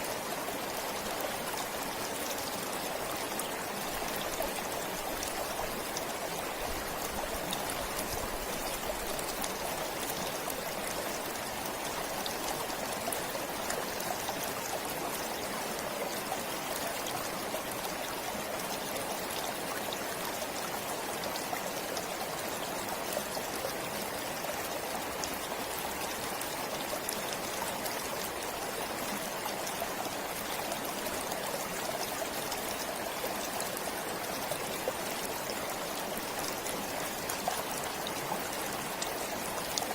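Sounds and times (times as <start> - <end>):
forest stream flowing: 0.0 - 39.9.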